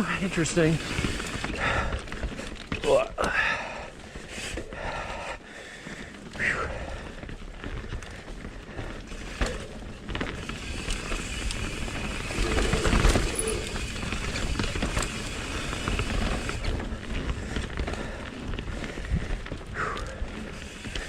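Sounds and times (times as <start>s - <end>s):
bike rattling and clicking: 0.0s - 21.0s
bike tyres on dirt and rocks: 0.0s - 21.0s.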